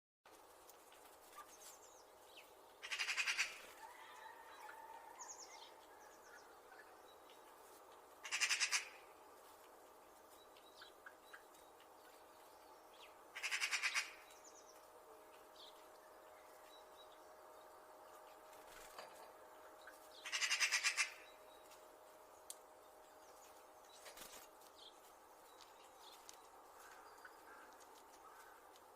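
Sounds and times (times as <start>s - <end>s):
magpie rattling chatter: 2.8s - 3.6s, 8.2s - 9.0s, 13.4s - 14.2s, 20.2s - 21.2s.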